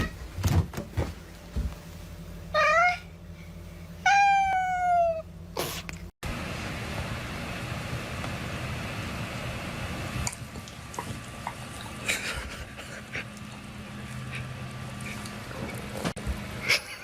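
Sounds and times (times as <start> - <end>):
cat meowing: 4.0 - 5.2.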